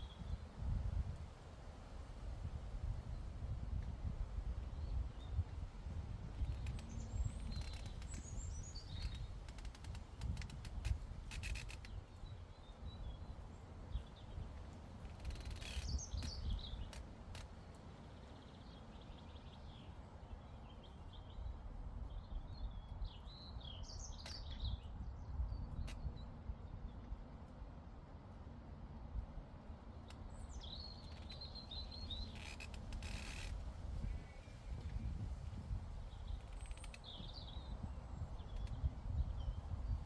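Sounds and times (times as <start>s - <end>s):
low rumble of breeze: 0.0s - 40.0s
small songbirds chirping: 6.2s - 10.5s, 11.4s - 27.0s, 29.9s - 40.0s.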